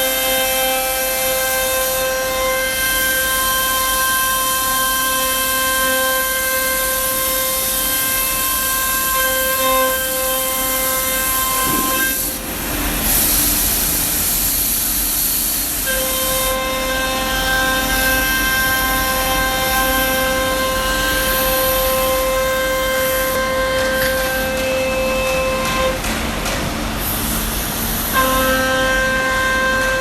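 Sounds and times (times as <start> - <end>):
router spindle whining: 0.0 - 13.0, 15.8 - 26.0
bit cutting plywood hiss: 0.0 - 26.1.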